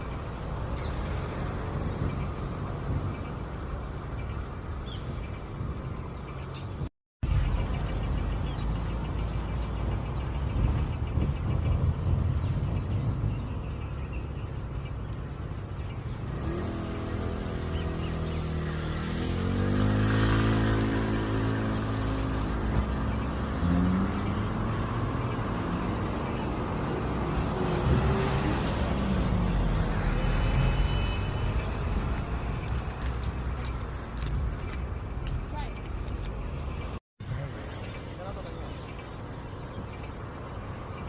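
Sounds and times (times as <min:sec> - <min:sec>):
vehicle engine rumbling: 0:00.0 - 0:41.0.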